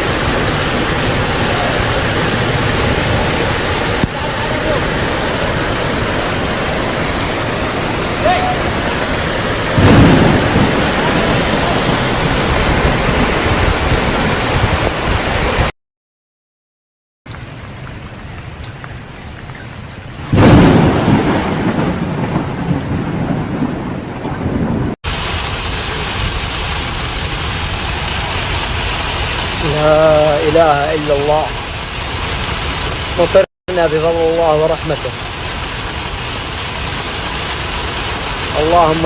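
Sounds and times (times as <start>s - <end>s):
heavy rain pouring: 0.0s - 15.7s, 17.3s - 39.0s
rumbling thunderclaps: 0.0s - 15.7s, 20.2s - 33.4s.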